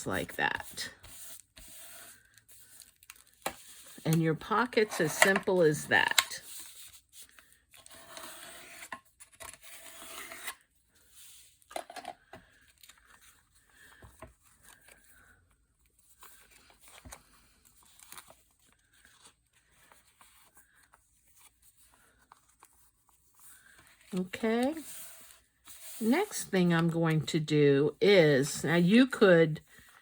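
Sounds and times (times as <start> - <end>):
paper rustling and sliding: 0.6 - 5.8, 16.0 - 26.4.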